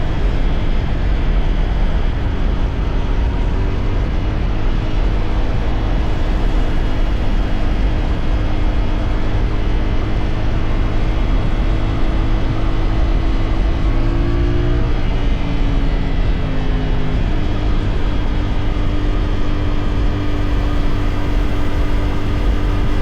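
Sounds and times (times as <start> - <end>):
loud steady rushing noise: 0.0 - 23.0
motorcycle engine running: 0.0 - 23.0.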